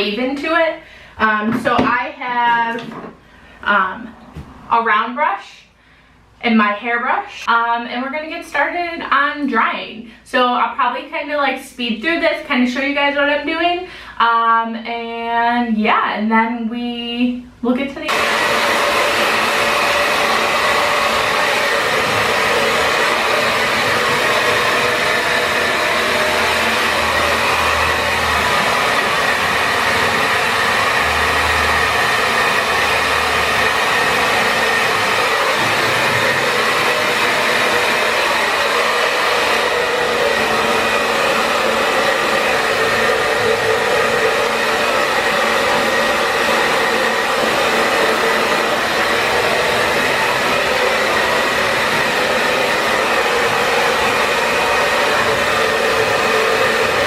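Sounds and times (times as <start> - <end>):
hair dryer blowing: 18.0 - 57.0.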